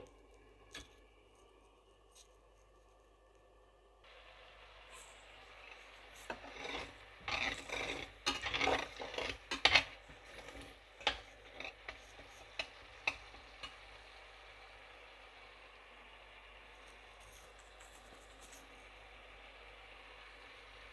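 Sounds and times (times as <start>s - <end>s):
paste stirred and scraped in bowl: 6.1s - 13.7s.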